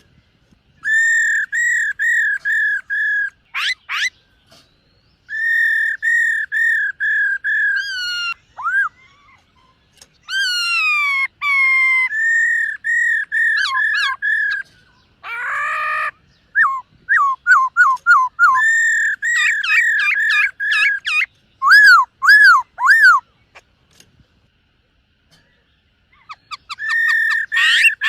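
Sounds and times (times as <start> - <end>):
bird singing whistled phrases: 0.8 - 4.2, 5.3 - 9.2, 15.4 - 23.2, 26.2 - 28.0.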